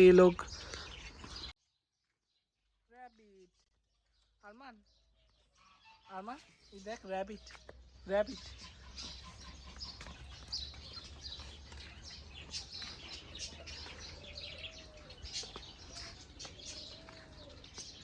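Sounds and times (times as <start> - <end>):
high bird chirps: 4.9 - 18.0
low bird cooing calls: 8.4 - 18.0.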